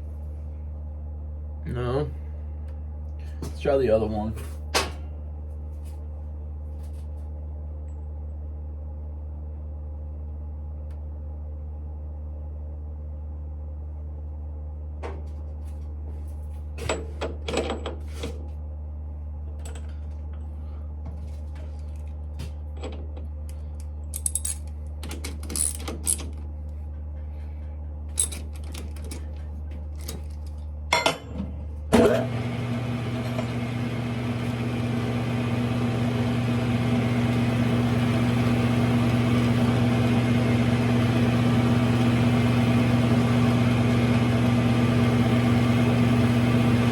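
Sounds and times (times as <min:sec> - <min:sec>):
low hum: 0:00.0 - 0:03.5, 0:04.9 - 0:16.9, 0:17.8 - 0:46.9
lathe motor running: 0:31.9 - 0:46.9.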